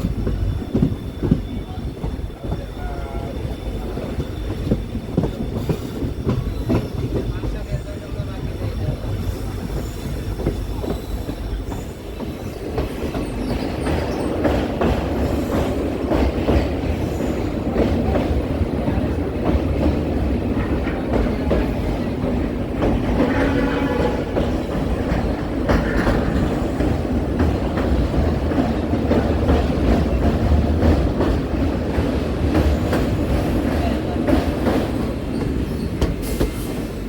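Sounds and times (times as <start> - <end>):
train rumbling: 0.0 - 37.0
wheels clacking over rail joints: 9.6 - 36.7.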